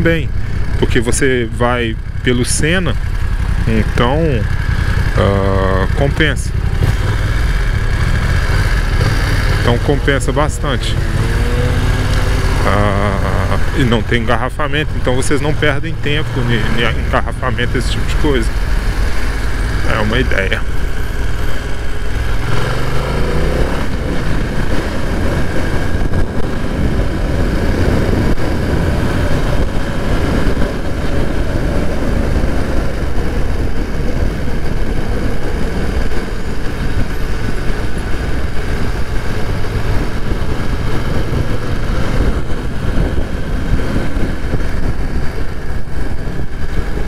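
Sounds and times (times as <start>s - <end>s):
motorcycle engine accelerating: 0.0s - 47.0s.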